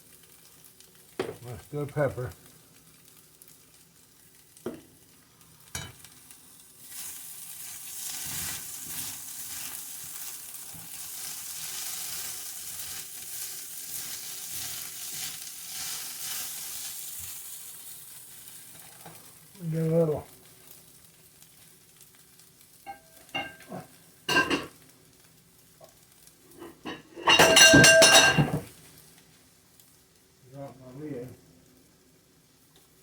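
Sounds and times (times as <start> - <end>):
food sizzling in a frying pan: 0.0 - 33.0
spatula stirring: 6.9 - 17.4.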